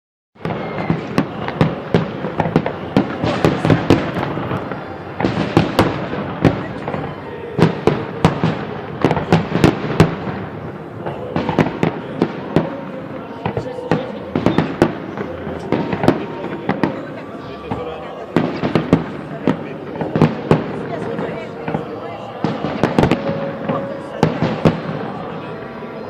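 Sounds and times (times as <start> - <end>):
firework bangs: 0.4 - 26.0.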